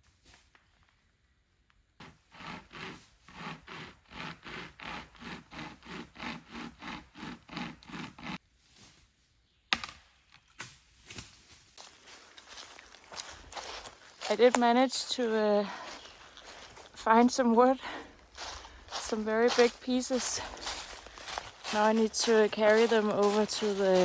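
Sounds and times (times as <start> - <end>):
hand saw cutting wood: 2.0 - 8.4.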